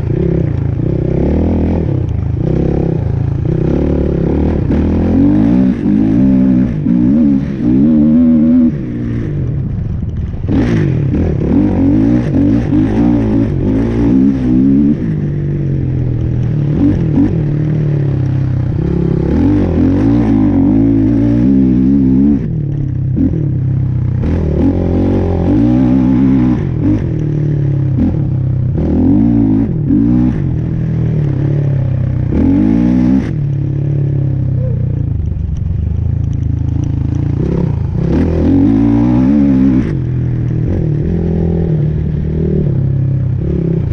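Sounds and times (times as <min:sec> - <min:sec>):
vehicle engine revving under load: 0:36.3 - 0:43.9.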